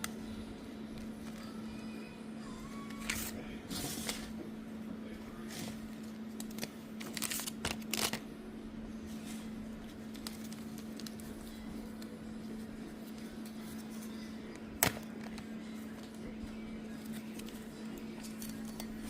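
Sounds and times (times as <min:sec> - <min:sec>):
steady low hum: 0:00.0 - 0:19.0
crinkling and rustling: 0:05.4 - 0:08.2, 0:09.1 - 0:16.3.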